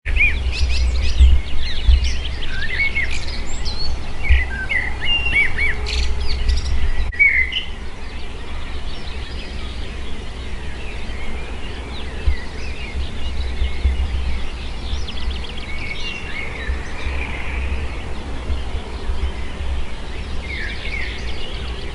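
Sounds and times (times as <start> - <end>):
songbirds singing: 0.1 - 21.9
steady low rumble: 0.1 - 21.9.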